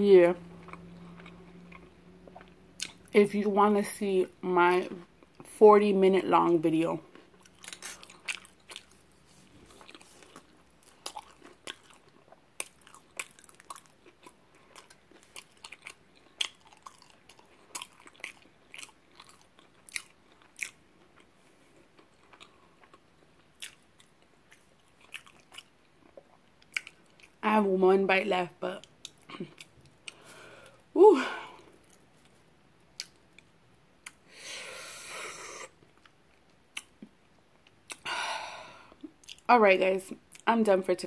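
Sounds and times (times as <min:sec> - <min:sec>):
person chewing food: 0:00.4 - 0:03.1, 0:07.0 - 0:27.4, 0:28.8 - 0:30.9, 0:31.6 - 0:34.3, 0:35.4 - 0:38.2, 0:38.8 - 0:39.5.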